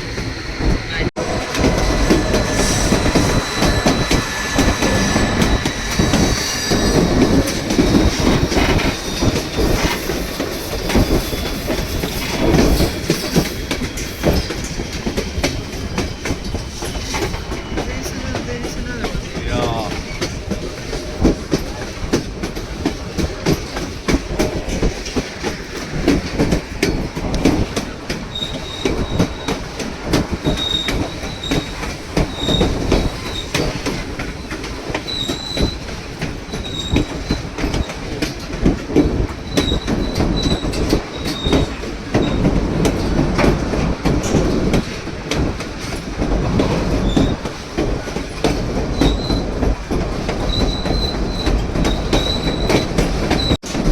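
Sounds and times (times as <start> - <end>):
high-pitched wheel squeals: 0.0 - 11.6, 30.4 - 34.0, 35.0 - 37.9, 50.5 - 53.6
train wheels clattering on track: 0.0 - 53.9.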